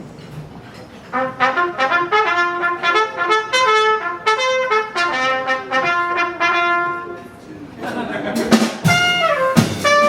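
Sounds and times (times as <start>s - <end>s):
trumpet playing lively melody: 1.1s - 7.4s, 8.8s - 10.0s.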